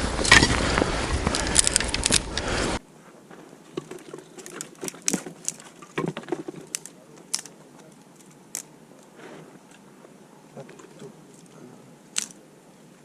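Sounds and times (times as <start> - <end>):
dry twigs snapping: 0.2 - 2.5, 3.7 - 9.8, 10.6 - 12.4.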